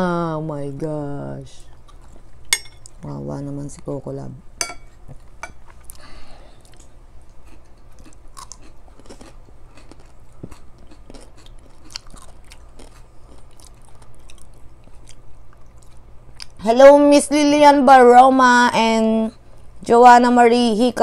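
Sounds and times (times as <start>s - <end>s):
people chewing and biting food: 5.0s - 16.6s.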